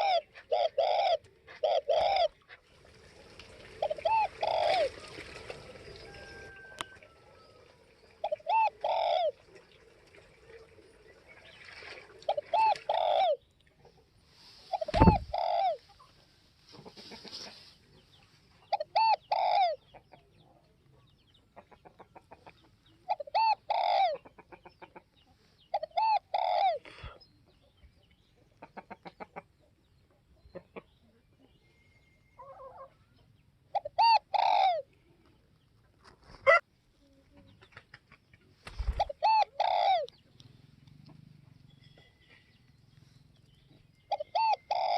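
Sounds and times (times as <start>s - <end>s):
dove cooing: 0.0s - 2.6s, 3.2s - 9.7s, 12.1s - 13.4s, 14.4s - 16.1s, 18.6s - 19.9s, 23.0s - 24.2s, 25.7s - 27.2s, 33.7s - 35.2s, 38.7s - 40.2s, 43.0s - 44.9s
dull thump: 14.9s - 15.3s.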